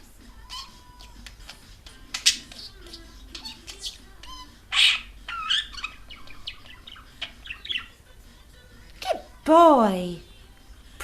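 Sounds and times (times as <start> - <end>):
budgerigar chattering: 0.5 - 8.0
budgerigar squawks: 2.3 - 7.9.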